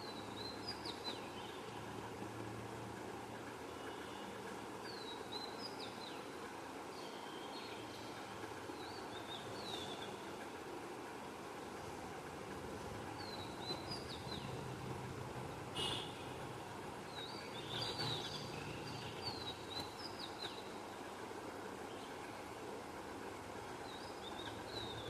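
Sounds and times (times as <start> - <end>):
background hum and hiss: 0.0 - 25.0
small birds chirping: 17.1 - 20.8.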